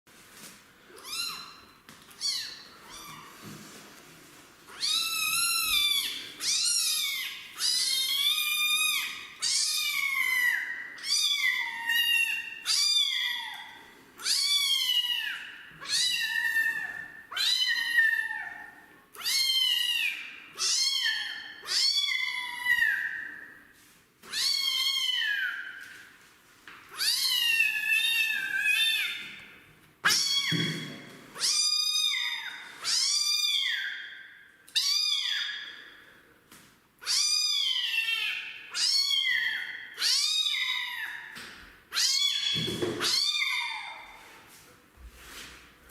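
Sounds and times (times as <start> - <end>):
kitten meowing loudly: 41.9 - 44.0.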